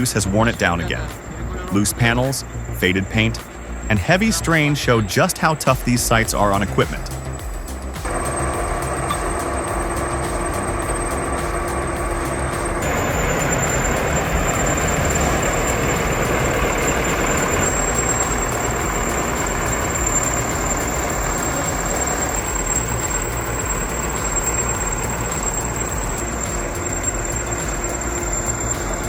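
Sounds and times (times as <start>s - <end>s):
heavy earthmoving machine engine: 0.0s - 29.0s.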